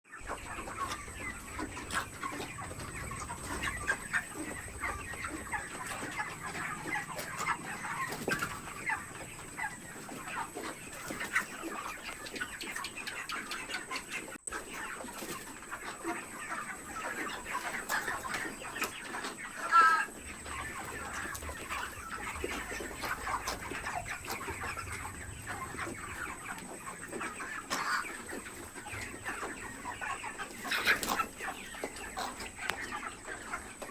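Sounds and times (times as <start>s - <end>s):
chickens clucking: 0.1s - 33.9s
chicken squawk: 0.2s - 33.9s.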